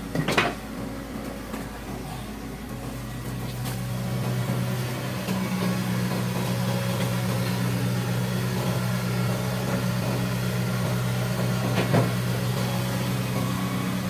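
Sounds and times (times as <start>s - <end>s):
diesel engine humming: 0.0s - 14.0s.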